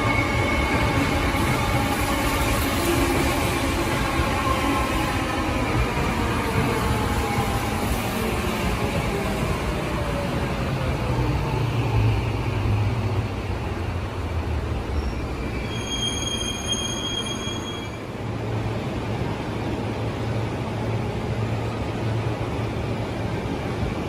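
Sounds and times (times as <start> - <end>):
electric train rumbling: 0.0 - 24.0
high squeal: 14.8 - 18.1.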